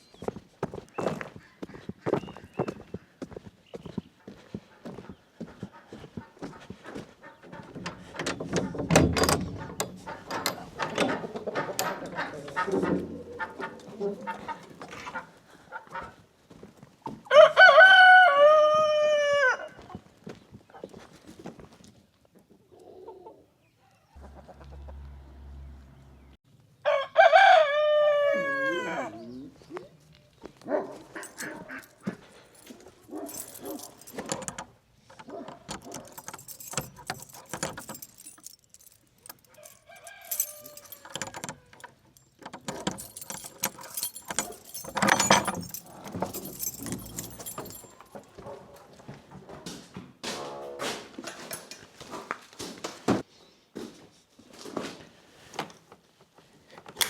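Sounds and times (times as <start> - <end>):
chickens clucking: 4.3 - 8.8, 9.5 - 16.2, 22.4 - 25.2
rooster crowing: 17.3 - 19.8, 26.8 - 29.2, 39.5 - 41.1.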